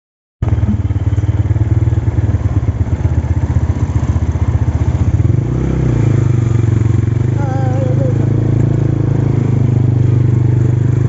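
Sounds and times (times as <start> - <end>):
motorcycle engine running: 0.4 - 11.0.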